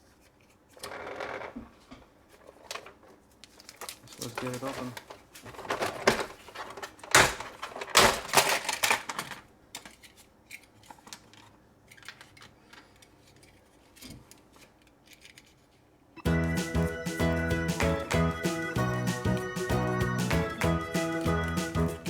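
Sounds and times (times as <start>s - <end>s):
hard plastic clattering: 3.6s - 10.0s
background music: 16.2s - 22.0s.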